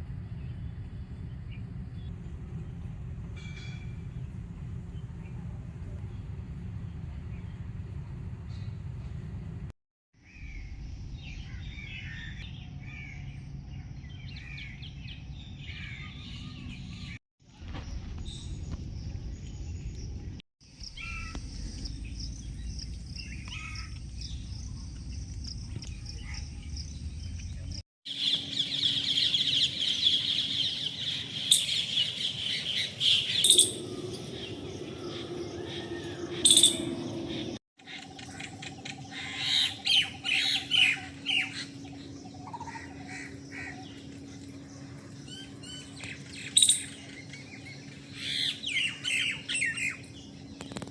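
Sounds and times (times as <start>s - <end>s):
wind rumble: 0.0s - 9.7s, 10.3s - 27.8s, 32.1s - 37.6s
wild birds chirping: 10.2s - 17.2s, 17.8s - 50.9s
sharp loud bird calls: 28.1s - 44.3s, 45.2s - 50.8s.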